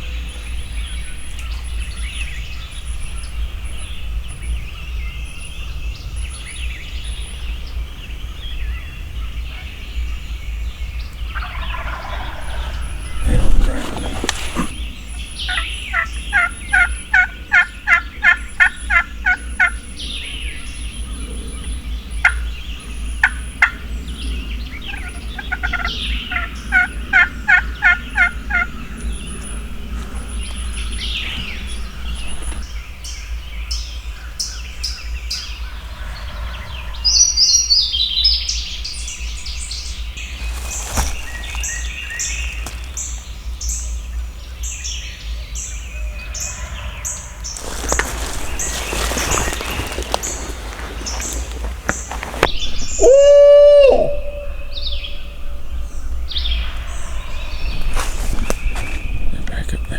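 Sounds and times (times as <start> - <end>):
wild turkey yelping: 11.4 - 19.8, 24.9 - 28.9, 47.6 - 55.9.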